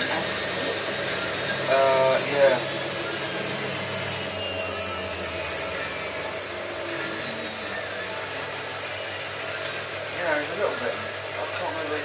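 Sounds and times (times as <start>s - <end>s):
faint high whine: 0.0s - 12.0s
washing machine running: 0.0s - 12.0s.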